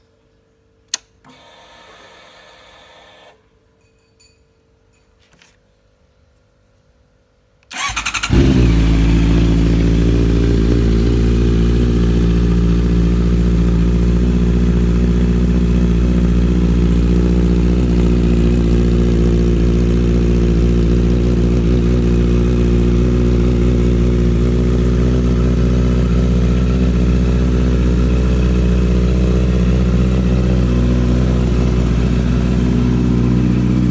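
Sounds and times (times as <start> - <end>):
motorcycle engine starting and idling: 7.7 - 33.9.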